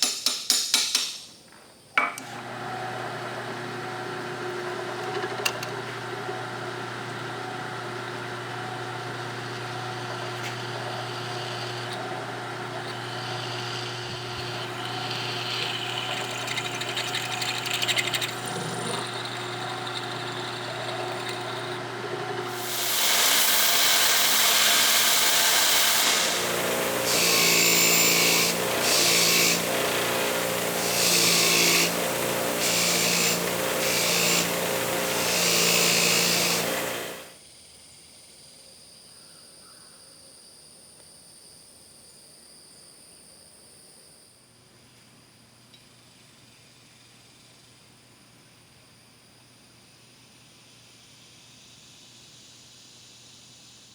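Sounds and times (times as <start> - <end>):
power tool motor humming: 2.2 - 37.4
loud scraping hissing noise: 22.5 - 37.3.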